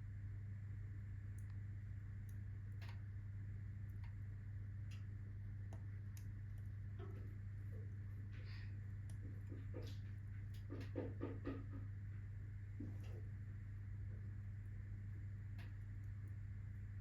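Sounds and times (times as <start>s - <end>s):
low hum: 0.0s - 17.0s
wood fire crackling: 11.8s - 17.0s.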